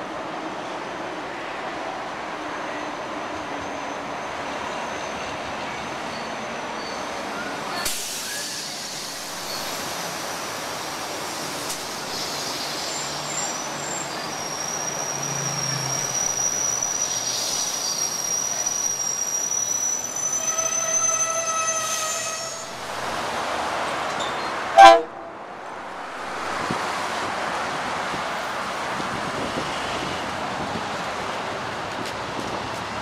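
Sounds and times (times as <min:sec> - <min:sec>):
train brakes squealing: 0:02.5 - 0:22.9, 0:24.1 - 0:25.2
train horn toot: 0:20.3 - 0:22.7, 0:24.8 - 0:25.5.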